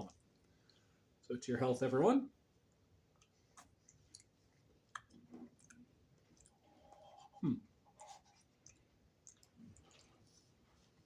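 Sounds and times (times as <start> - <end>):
mouth sounds eating ice cream: 3.2 - 10.2.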